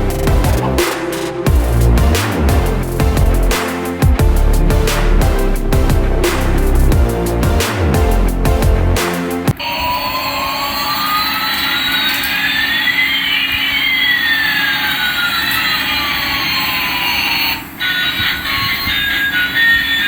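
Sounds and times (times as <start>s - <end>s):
music: 0.0s - 9.6s.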